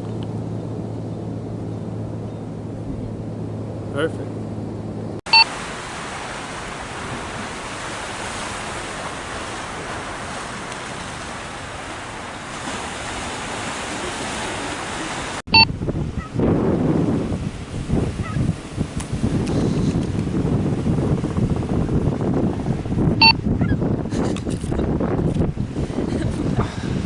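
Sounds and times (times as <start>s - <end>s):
wind on microphone: 4.6s - 27.0s
ocean surf: 5.3s - 23.4s.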